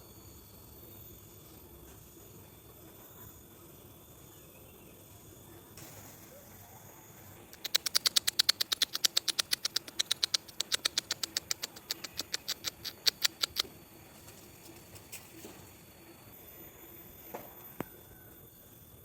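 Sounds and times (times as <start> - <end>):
animal sharp chirps: 7.5 - 13.7.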